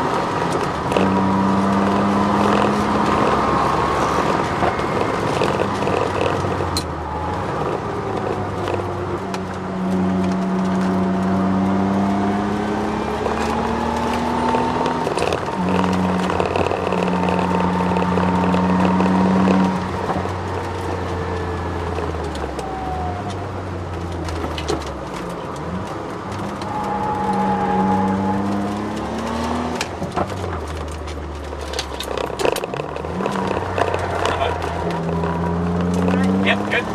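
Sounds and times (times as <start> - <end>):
car engine under full throttle: 0.0 - 36.9
drivetrain whine: 0.0 - 36.9.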